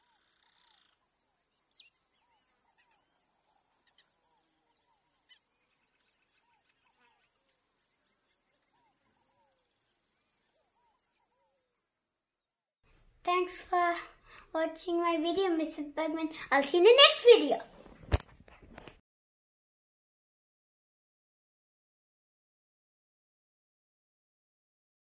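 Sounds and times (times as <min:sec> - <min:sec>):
faint birds chirping: 0:00.0 - 0:11.9.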